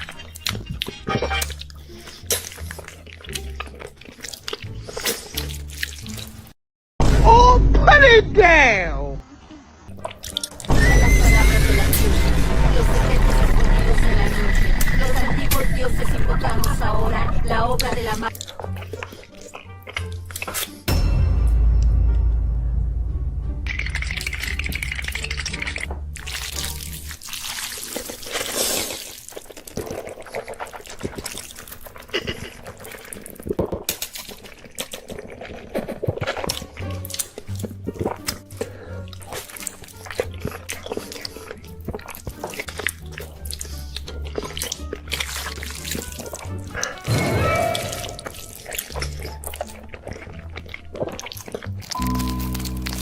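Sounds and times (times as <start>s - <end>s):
person eating with wet clicks: 0.0s - 6.5s, 9.9s - 10.7s, 17.8s - 20.9s, 23.7s - 47.1s, 47.7s - 53.0s
low background music: 0.0s - 8.9s, 9.9s - 28.0s, 36.2s - 53.0s
background music with bass line: 20.9s - 27.0s
liquid splashing and trickling: 23.6s - 32.0s, 32.6s - 53.0s.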